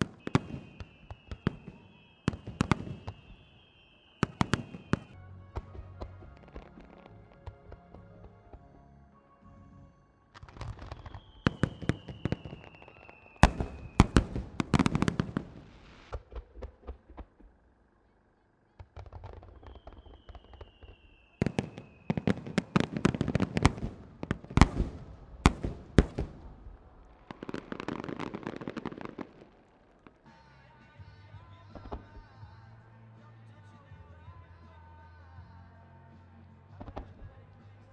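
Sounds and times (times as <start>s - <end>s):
firework crackle: 0.0s - 8.1s, 10.4s - 17.6s, 18.8s - 30.7s
firework falling whistle: 0.0s - 8.5s, 10.4s - 16.2s, 19.4s - 29.5s
firework bangs: 0.0s - 8.6s, 10.4s - 17.5s, 18.8s - 30.3s.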